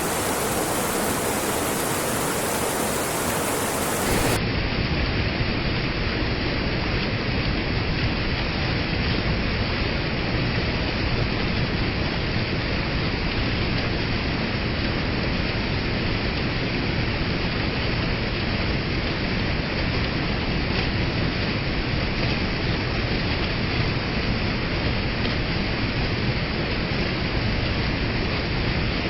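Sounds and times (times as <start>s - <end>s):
waterfall and river rushing: 0.0s - 4.4s.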